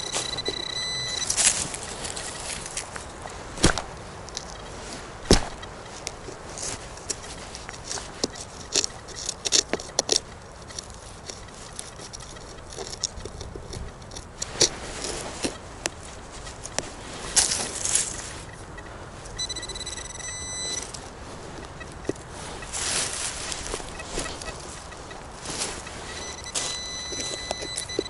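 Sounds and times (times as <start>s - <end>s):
metal detector beep: 0.0s - 3.4s, 4.4s - 28.0s
scraping on dry leaves and soil: 0.0s - 28.0s
sharp clicks: 23.6s - 28.0s.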